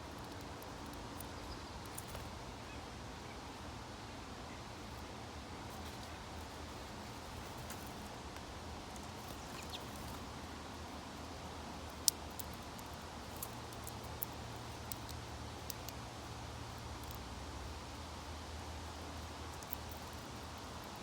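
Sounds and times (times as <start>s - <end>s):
birds clicking and tapping at feeder: 0.0s - 2.4s, 6.7s - 10.5s, 11.5s - 17.6s, 18.8s - 21.0s.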